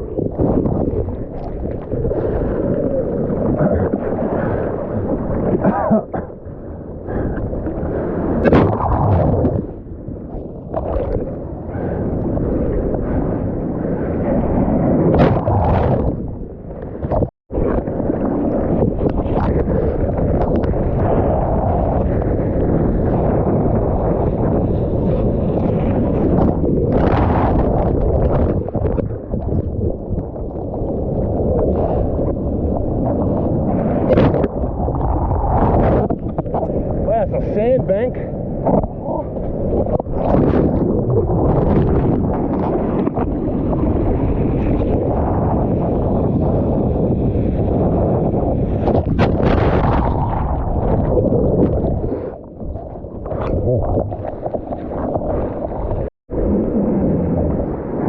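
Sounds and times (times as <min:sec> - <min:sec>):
ocean water sloshing and splashing: 0:00.0 - 0:58.0
wind buffeting microphone: 0:00.0 - 0:58.0
water splashes: 0:48.7 - 0:56.1.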